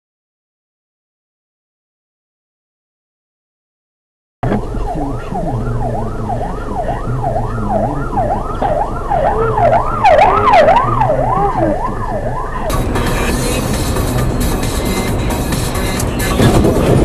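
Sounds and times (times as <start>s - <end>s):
emergency siren wailing: 4.4s - 17.0s
low vehicle rumble: 4.4s - 17.0s.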